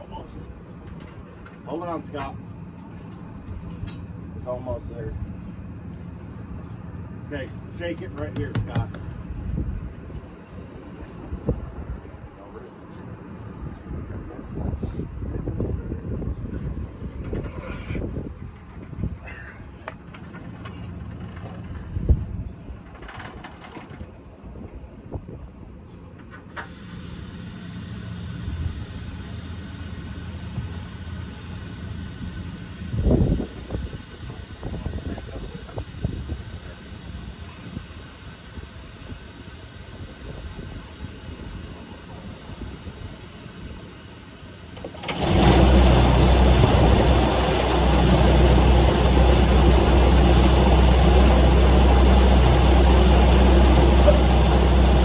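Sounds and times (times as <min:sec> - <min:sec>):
engine humming: 0:16.3 - 0:24.1, 0:26.6 - 0:55.0
motor humming: 0:41.8 - 0:55.0.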